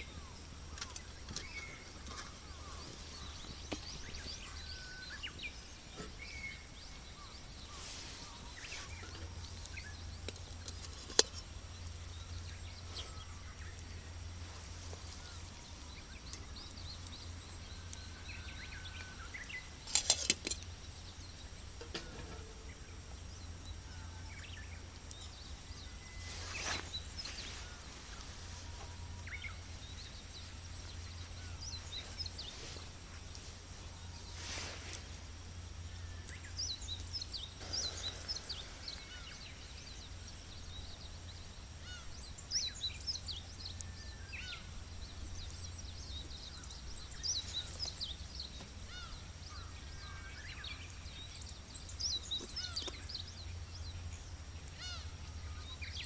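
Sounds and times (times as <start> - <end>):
steady low hum: 0.0 - 56.0
wood fire crackling: 5.4 - 23.9, 24.6 - 50.0
fire popping: 7.3 - 18.2, 19.0 - 23.6.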